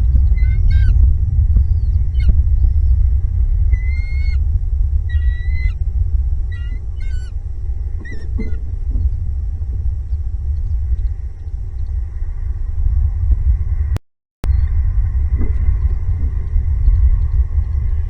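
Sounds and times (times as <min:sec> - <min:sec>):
bird calling: 0:00.0 - 0:03.0, 0:03.7 - 0:04.4, 0:05.1 - 0:05.8, 0:06.5 - 0:09.3
low rumble: 0:00.0 - 0:18.0.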